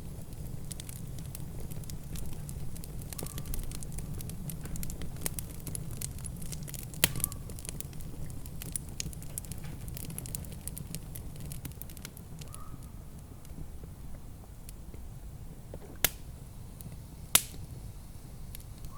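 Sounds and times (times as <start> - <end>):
wood fire crackling: 0.0 - 18.9
loud fire pop: 0.7 - 13.0, 15.8 - 16.4, 17.3 - 17.7.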